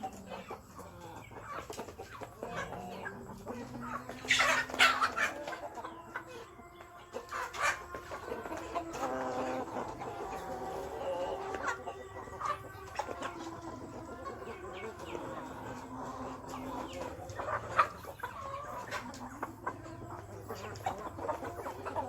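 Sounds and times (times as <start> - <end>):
chickens clucking: 0.0 - 22.0
chicken harsh call: 2.4 - 6.2.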